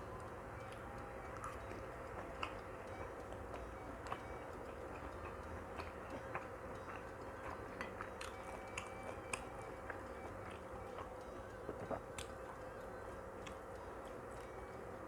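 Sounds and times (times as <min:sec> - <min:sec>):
mouth chewing food: 0:03.2 - 0:14.4.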